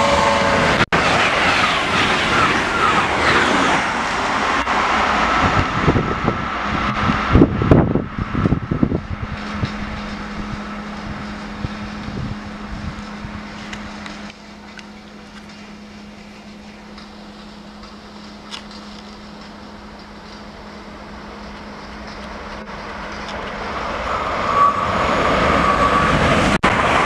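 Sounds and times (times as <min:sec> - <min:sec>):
high-speed train passing: 0:00.0 - 0:27.0
train clattering: 0:09.2 - 0:27.0.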